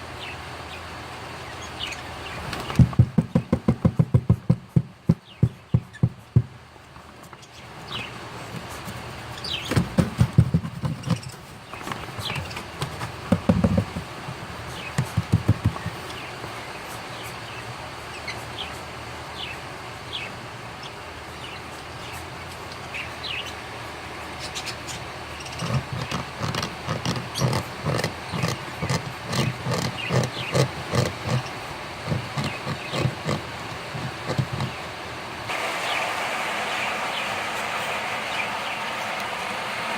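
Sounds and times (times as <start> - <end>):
chicks begging with rasping pulses: 27.3 - 39.9
steady hiss: 33.5 - 39.9.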